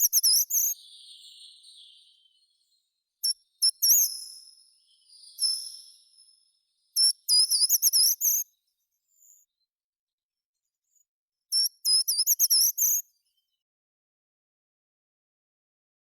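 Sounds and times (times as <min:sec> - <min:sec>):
songbird whistling: 0:00.0 - 0:08.5, 0:11.5 - 0:13.1.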